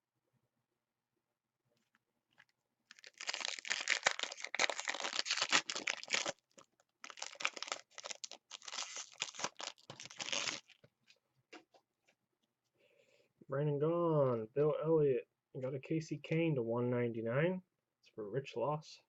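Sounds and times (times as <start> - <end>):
foil wrapper tearing and crinkling: 2.9 - 10.8.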